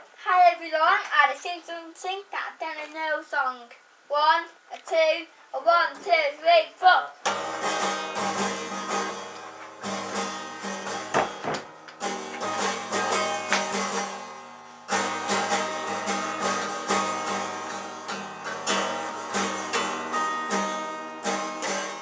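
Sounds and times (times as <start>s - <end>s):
guitar strumming: 7.2s - 22.0s.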